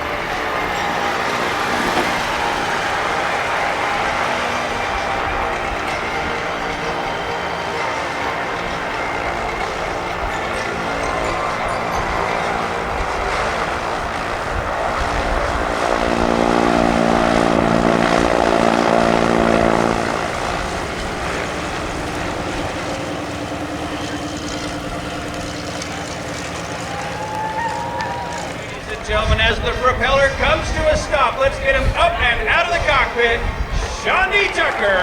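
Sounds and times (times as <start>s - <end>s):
biplane engine and propeller taxiing: 0.0s - 35.0s.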